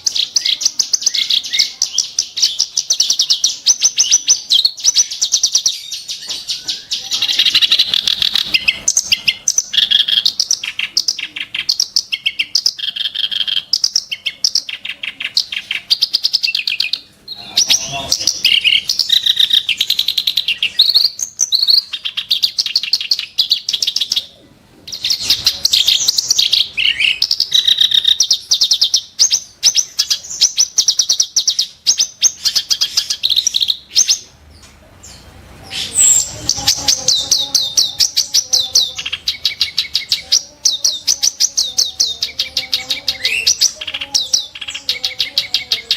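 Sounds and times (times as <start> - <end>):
reed warbler harsh chattering song: 0.0 - 24.2.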